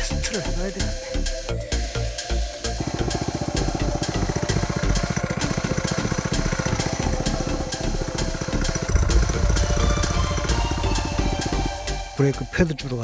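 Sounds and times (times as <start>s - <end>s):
small go-kart engine running: 2.6s - 12.0s.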